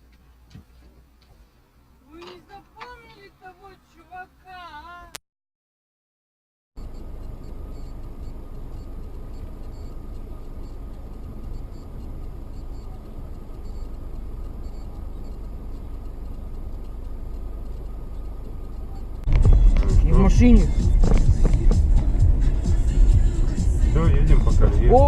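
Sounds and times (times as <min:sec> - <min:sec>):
car engine and road rumble: 0:00.0 - 0:05.2, 0:06.8 - 0:25.0
faint steady whine: 0:06.8 - 0:25.0.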